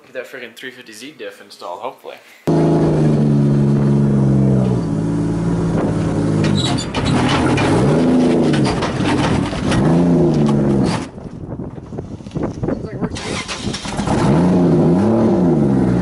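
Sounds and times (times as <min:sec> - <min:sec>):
vehicle engine running and revving: 0:02.5 - 0:11.1, 0:13.7 - 0:16.0.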